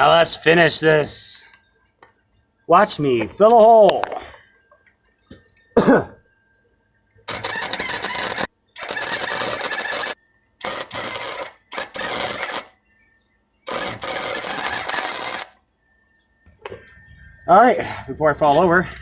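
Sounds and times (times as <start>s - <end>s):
welding arc crackling: 7.3s - 12.8s, 13.7s - 15.6s.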